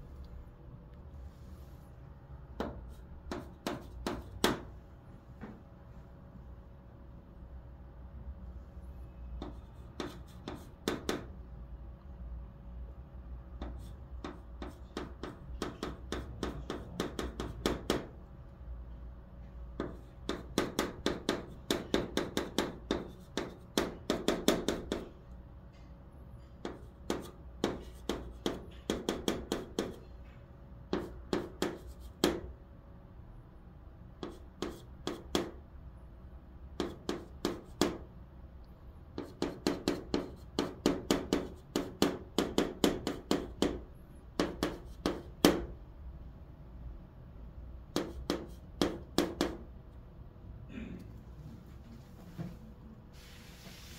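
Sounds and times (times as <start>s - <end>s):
chalk tapping and scraping: 2.6s - 4.7s, 9.4s - 11.3s, 13.6s - 18.1s, 19.7s - 25.1s, 25.7s - 32.5s, 34.2s - 35.6s, 36.8s - 38.1s, 39.1s - 43.8s, 44.4s - 45.7s, 47.9s - 49.6s.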